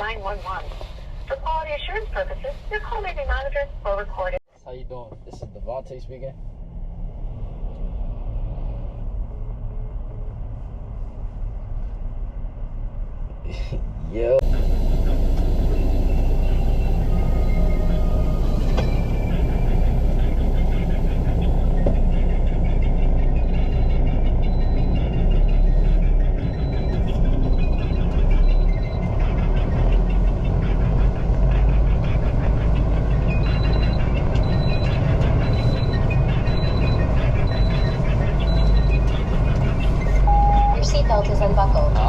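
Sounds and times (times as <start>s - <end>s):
vehicle engine rumble: 0.0s - 42.0s
short high beeps: 40.3s - 40.8s.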